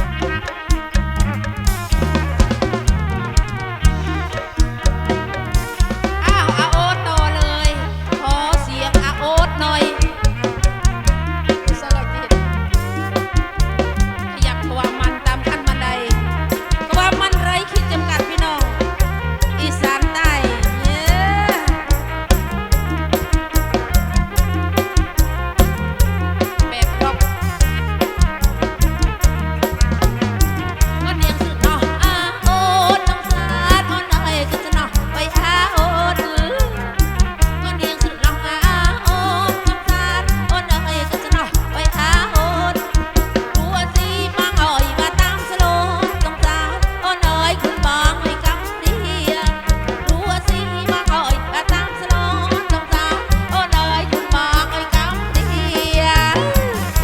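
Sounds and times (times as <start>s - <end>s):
folk band music over pa: 0.0s - 57.0s
steady drum beat: 0.0s - 57.0s
sustained bass notes: 0.0s - 57.0s
wavering lead melody: 0.0s - 57.0s
wavering high melody: 1.8s - 8.0s.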